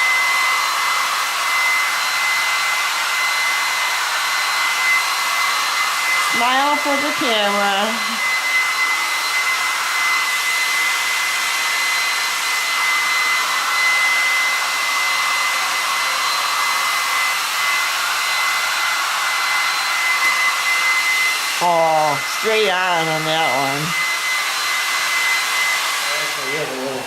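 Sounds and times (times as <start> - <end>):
hair dryer running: 0.0 - 27.0.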